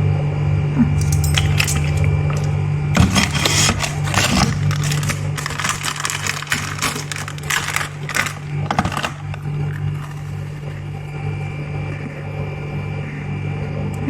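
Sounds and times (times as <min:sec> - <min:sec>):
rustling crinkling handling noise: 0:01.0 - 0:11.0.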